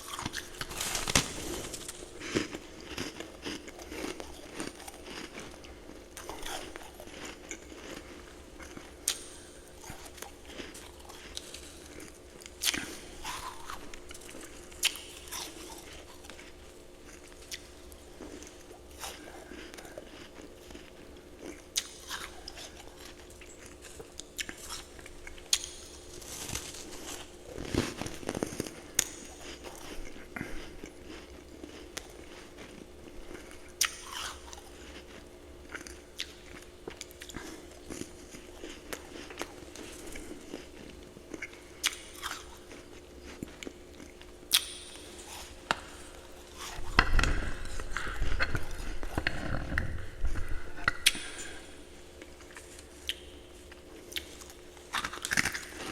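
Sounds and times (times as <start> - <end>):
faint steady hum: 0.0 - 55.9
ice being chewed: 0.0 - 55.9.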